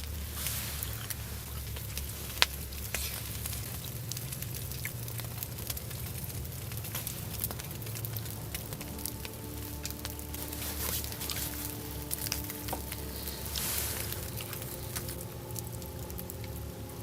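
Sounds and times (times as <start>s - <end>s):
campfire crackles: 0.0s - 17.0s
food sizzling in a pan: 8.9s - 16.3s.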